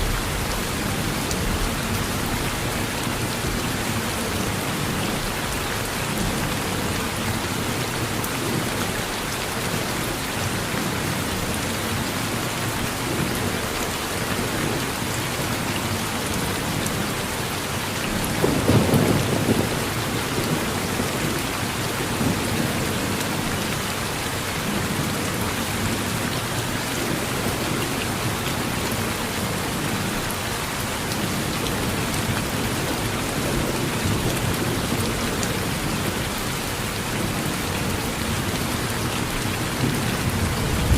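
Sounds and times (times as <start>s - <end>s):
rain falling on a porch: 0.0s - 40.9s
thunder rumble: 39.8s - 40.9s.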